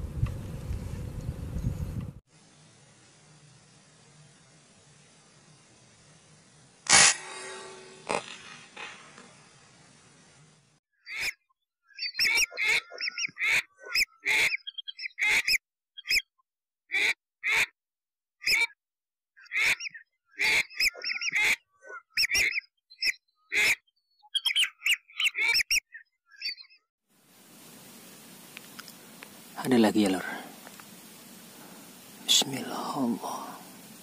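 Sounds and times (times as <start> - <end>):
harsh bird calls: 11.0 - 16.3, 19.4 - 26.8
whistled bird notes: 11.1 - 15.3, 19.7 - 21.5, 22.2 - 26.9.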